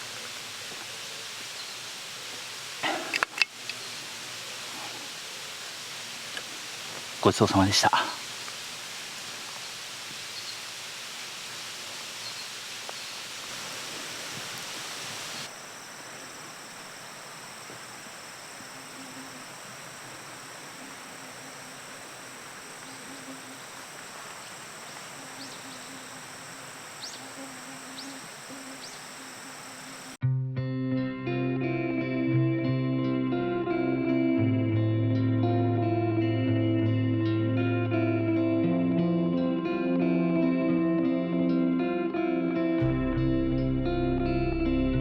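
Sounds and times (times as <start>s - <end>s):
high insect drone: 0.0s - 30.2s
steady hiss: 0.0s - 30.2s.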